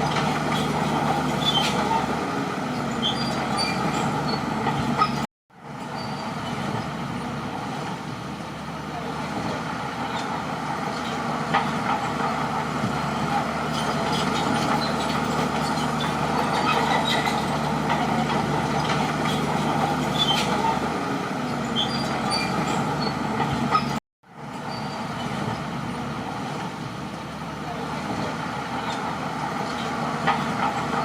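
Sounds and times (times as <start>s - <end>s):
bulldozer diesel engine running: 0.0s - 31.0s
short high squeaks: 0.5s - 2.0s, 3.0s - 6.7s, 13.7s - 20.7s, 21.7s - 24.0s, 24.6s - 25.4s.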